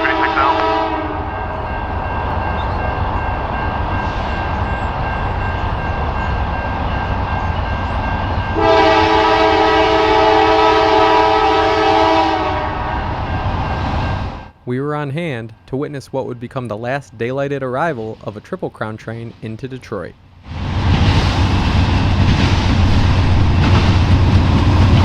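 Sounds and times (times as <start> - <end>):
train horn blast: 0.0 - 1.5, 8.5 - 13.2
freight train rumbling: 0.0 - 25.0.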